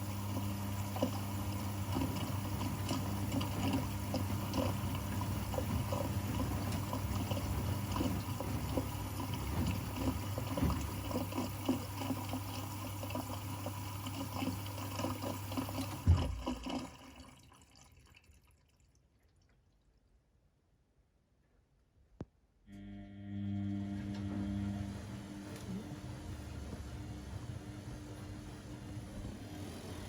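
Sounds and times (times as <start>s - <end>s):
pump hum: 0.0s - 17.5s, 22.7s - 30.0s
washing machine water splashing: 0.0s - 20.2s, 23.9s - 30.0s
thump: 16.0s - 16.5s.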